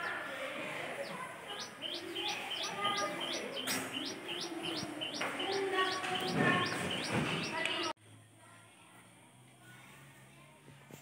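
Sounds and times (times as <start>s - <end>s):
bird repeating high call: 1.0s - 7.9s.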